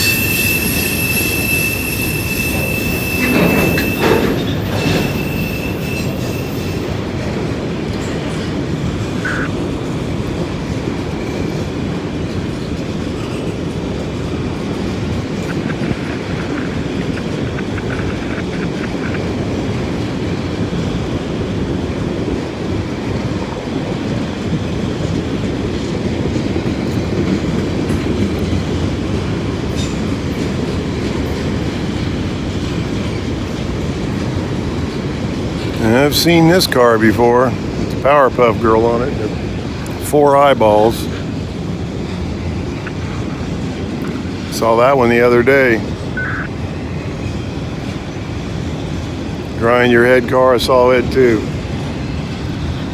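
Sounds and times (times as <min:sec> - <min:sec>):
thin wheel squeal: 0:00.0 - 0:07.0
clickety-clack over rail joints: 0:00.0 - 0:52.9
freight train rumbling past: 0:00.0 - 0:52.9.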